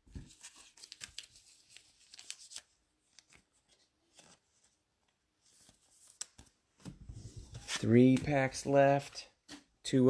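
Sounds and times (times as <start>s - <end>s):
cards being flipped: 5.5s - 8.4s.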